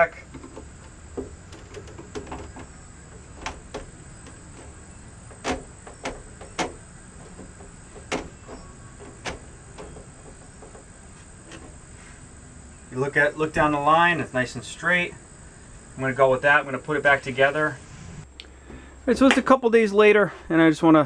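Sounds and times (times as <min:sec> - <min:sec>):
sunroof mechanism clicking: 0:00.0 - 0:12.8
steady low hum: 0:00.0 - 0:19.3.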